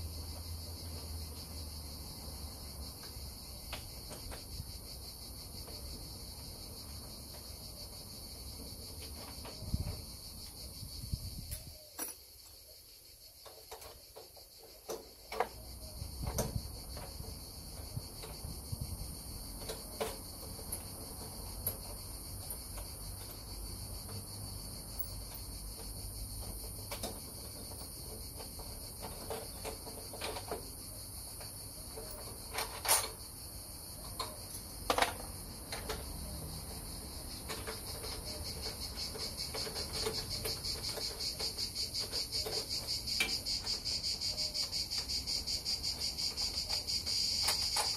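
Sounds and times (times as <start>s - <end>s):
crickets chirping: 0.0s - 47.9s
sharp clicks and knocks: 13.4s - 18.5s, 19.4s - 23.4s, 25.0s - 33.3s, 34.0s - 47.9s.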